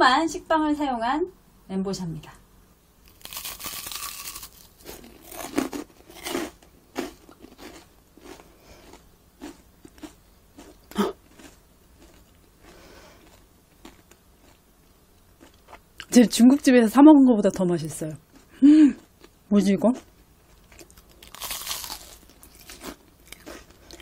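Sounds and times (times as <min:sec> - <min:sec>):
crunchy bite into fried toast: 0:03.0 - 0:14.0, 0:20.7 - 0:24.0
crunchy chewing: 0:03.0 - 0:16.1, 0:20.0 - 0:24.0.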